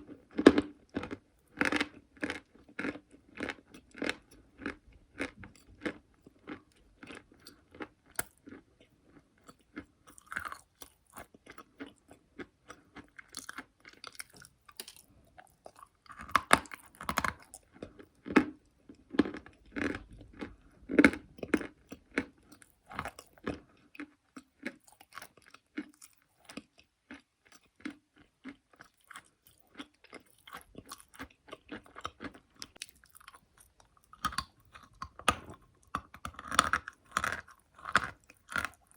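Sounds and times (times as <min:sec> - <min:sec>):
chalk being chewed: 0:21.4 - 0:38.9.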